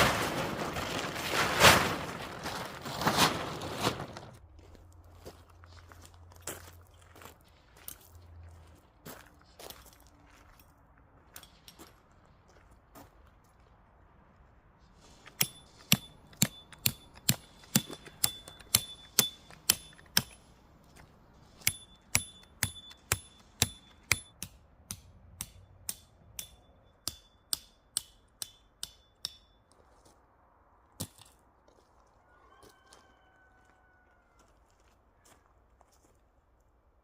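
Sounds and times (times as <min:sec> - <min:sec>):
sharp metallic strikes: 0:15.4 - 0:20.5.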